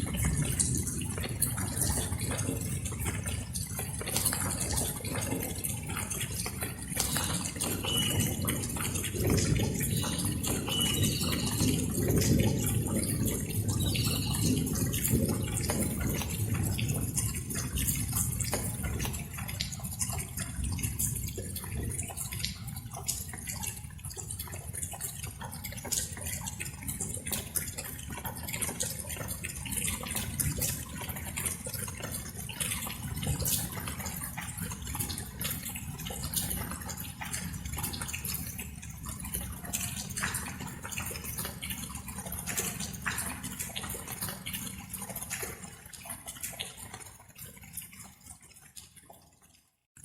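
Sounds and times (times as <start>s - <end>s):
raindrops pattering: 0.0s - 50.0s.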